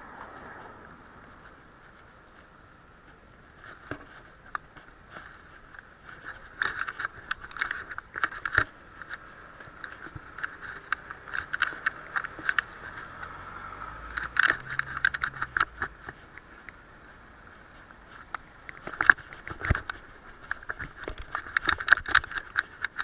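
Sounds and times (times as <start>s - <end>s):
rattling clicks: 14.1s - 16.7s.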